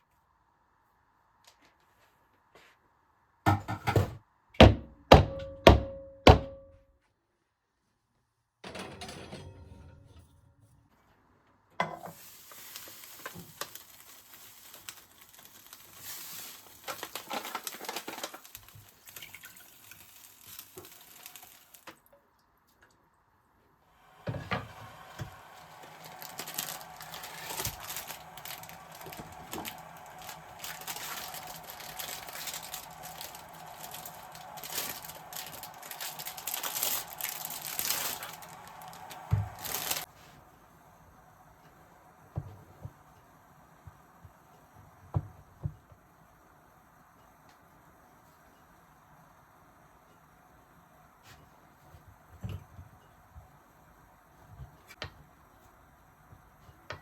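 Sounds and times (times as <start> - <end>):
light hissing noise: 12.0 - 22.0, 23.9 - 44.8.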